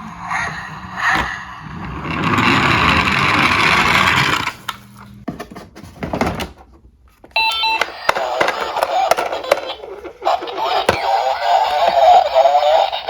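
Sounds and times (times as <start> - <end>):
toy cars rolling on plastic: 1.7 - 4.8, 7.8 - 13.0
toy cars clattering: 7.5 - 13.0.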